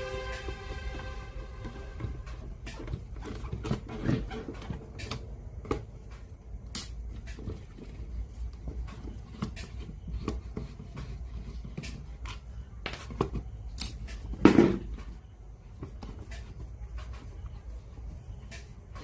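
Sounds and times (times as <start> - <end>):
low steady hum: 0.0 - 19.0
small clicks of handling parts: 6.1 - 7.6, 13.7 - 14.2.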